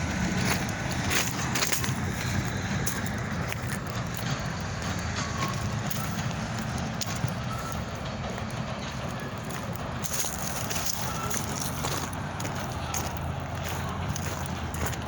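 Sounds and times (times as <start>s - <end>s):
train wheels rumbling on rails: 0.0s - 15.0s
faint wheel squeals: 5.2s - 15.0s.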